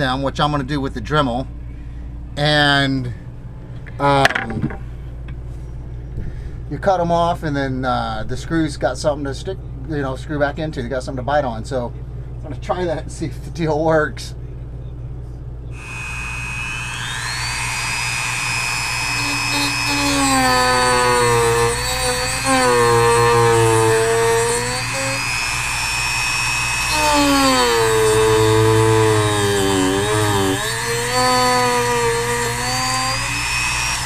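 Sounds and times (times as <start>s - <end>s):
bit cutting into wood: 15.8s - 34.0s
rotary tool high whine: 15.8s - 34.0s.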